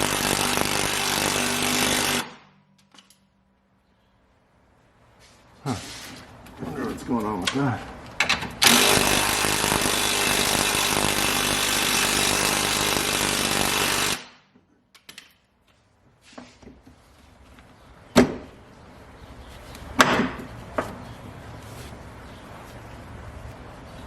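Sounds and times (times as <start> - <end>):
power tool running: 0.0 - 2.4, 8.6 - 14.3.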